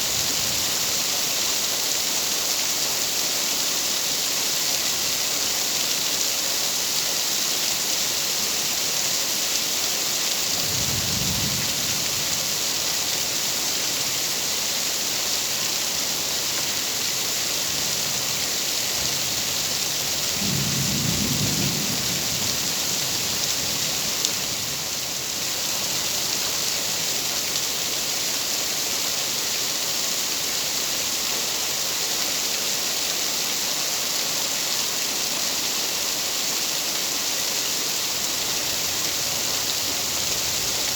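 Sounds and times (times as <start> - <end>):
rain falling: 0.0 - 40.9
distant thunder rumbles: 20.3 - 23.4.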